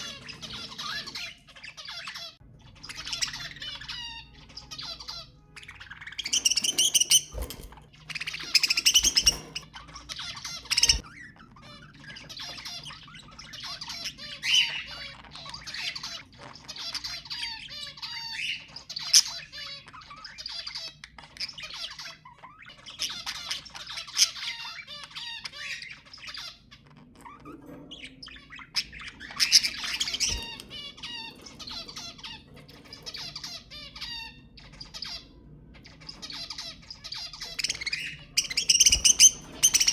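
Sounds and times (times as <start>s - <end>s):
budgerigars chattering and warbling: 0.0s - 39.9s
budgerigar squawks: 28.8s - 39.9s.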